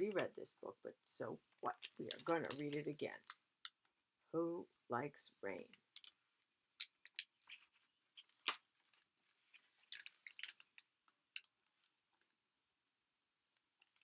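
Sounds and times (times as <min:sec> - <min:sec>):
book pages crinkling and clicking: 0:01.7 - 0:03.4, 0:06.8 - 0:12.0.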